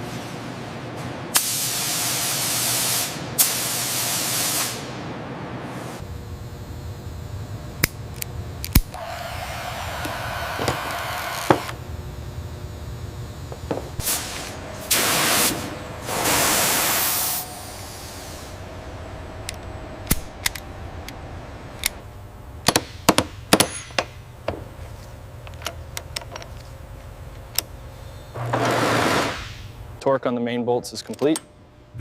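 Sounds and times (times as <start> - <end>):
steady low hum: 4.8 - 32.0
loud hissing bursts: 14.0 - 18.7, 28.7 - 29.7.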